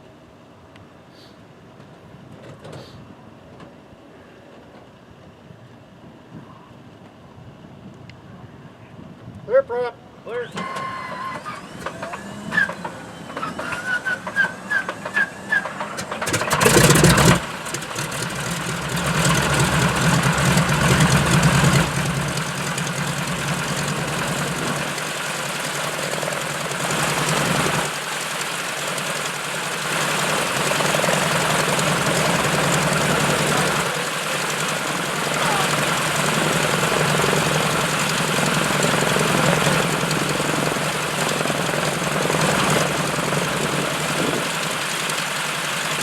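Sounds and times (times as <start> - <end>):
airplane piston engine starting: 10.3 - 46.0.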